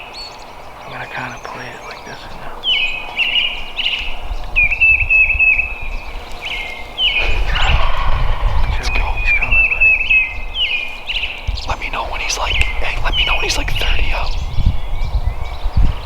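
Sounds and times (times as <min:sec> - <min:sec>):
turkey call yelps: 0:07.0 - 0:09.9.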